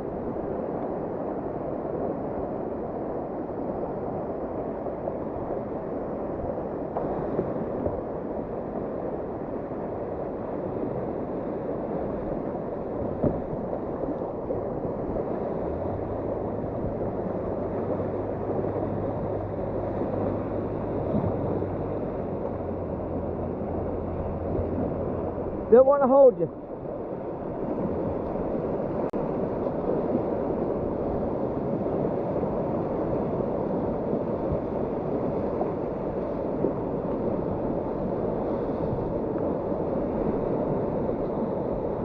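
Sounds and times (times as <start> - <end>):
river rapid rushing: 0.0 - 42.0
low hum: 12.0 - 42.0.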